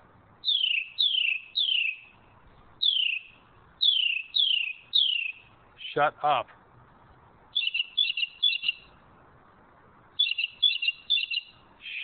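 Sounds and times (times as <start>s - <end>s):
bird calling high slurred note: 0.4s - 6.2s, 7.5s - 9.0s, 10.2s - 12.0s.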